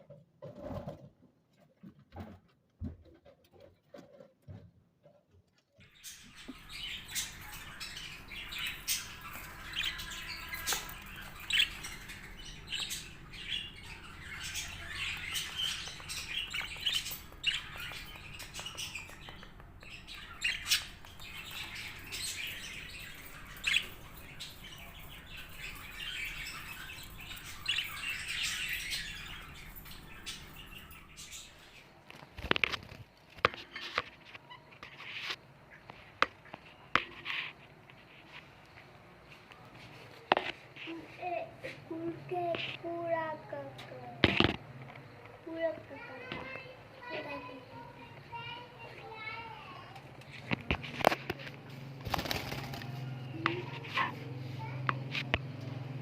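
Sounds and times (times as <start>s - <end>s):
budgerigars chirping: 5.8s - 31.9s.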